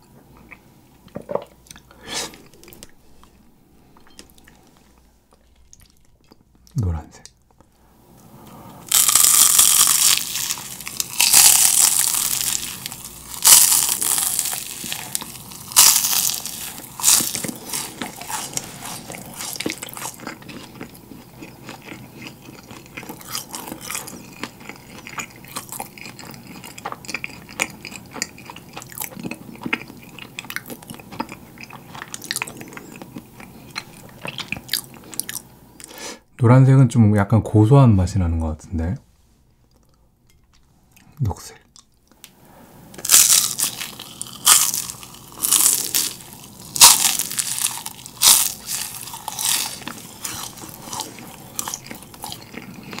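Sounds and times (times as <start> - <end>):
quiet chewing: 0.2 - 7.7, 10.0 - 36.0, 39.6 - 42.3, 43.0 - 53.0
crisp crunching: 8.9 - 28.0, 43.0 - 53.0.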